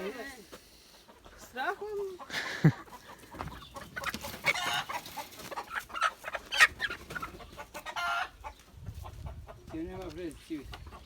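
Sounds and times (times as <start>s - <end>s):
poultry squawking: 1.0s - 9.8s.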